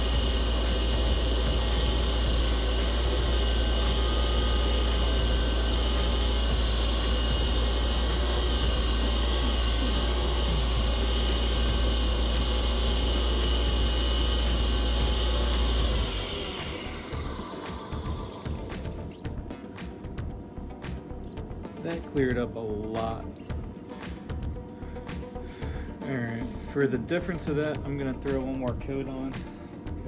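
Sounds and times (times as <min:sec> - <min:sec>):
wood lathe motor humming: 0:00.0 - 0:20.6.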